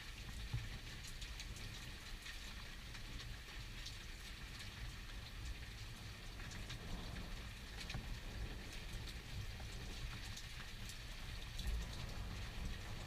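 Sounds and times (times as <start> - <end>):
sharp ticks of raindrops: 0.0 - 13.0
steady rain falling: 0.0 - 13.0
low even rumble: 5.9 - 13.0.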